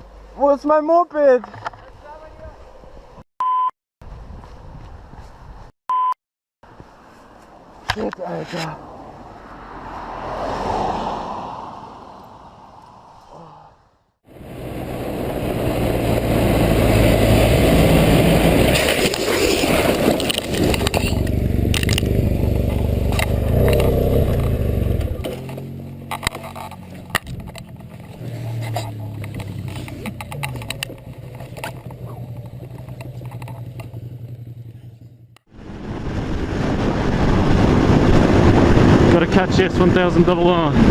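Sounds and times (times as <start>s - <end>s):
wind and road noise: 0.0s - 3.2s, 4.0s - 5.8s, 6.6s - 40.9s
motorcycle engine running: 14.3s - 35.4s
sharp clicks and knocks: 20.0s - 34.5s.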